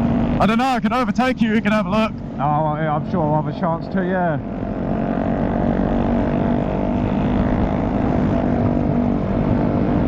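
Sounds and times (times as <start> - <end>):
motorcycle engine cruising: 0.0 - 10.0
wind rush on microphone: 5.3 - 10.0.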